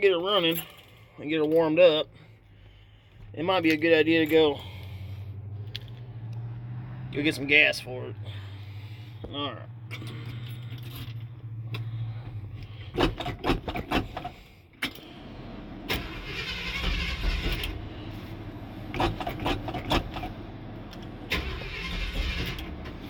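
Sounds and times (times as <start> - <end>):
starter cranking engine: 11.8 - 23.0.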